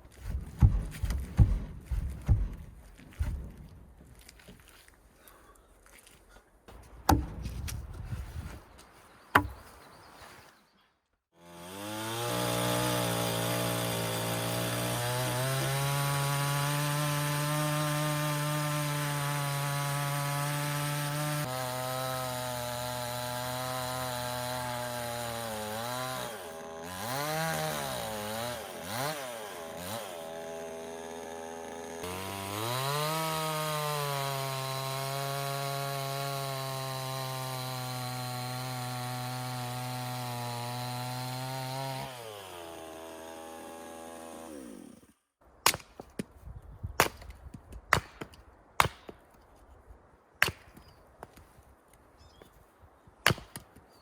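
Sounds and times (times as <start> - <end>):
sharp knocks: 0.2 - 3.4, 7.0 - 7.7, 9.3 - 9.6.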